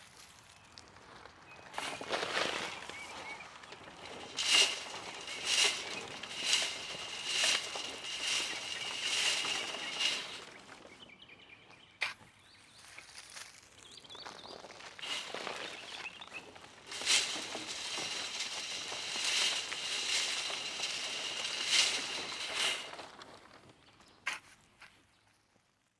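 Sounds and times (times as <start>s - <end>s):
wood chips rattling in sieve: 1.8s - 10.7s, 15.0s - 23.1s.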